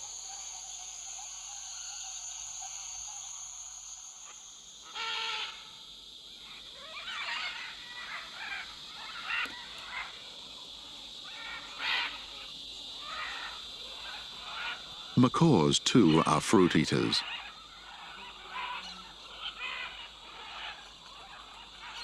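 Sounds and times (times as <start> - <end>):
high insect drone: 0.0 - 22.0
harsh bird calls: 13.0 - 22.0.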